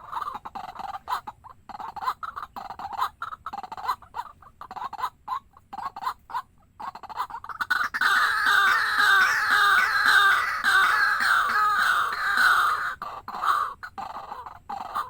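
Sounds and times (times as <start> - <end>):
waterhen calling: 7.5 - 13.7.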